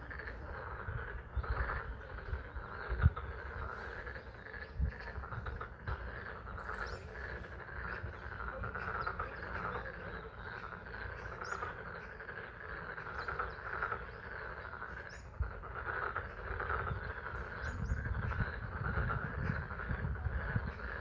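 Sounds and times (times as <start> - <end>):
frogs calling: 0.0 - 21.0
bird chirps: 1.3 - 15.4.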